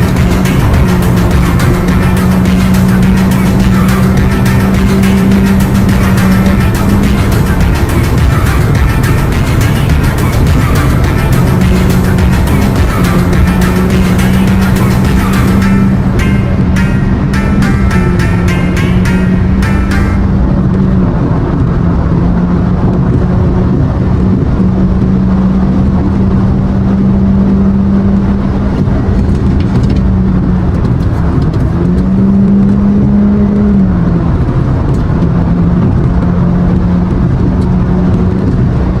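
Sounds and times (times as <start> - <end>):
motorcycle engine at high revs: 0.0 - 16.3
wind and road noise: 0.0 - 39.0.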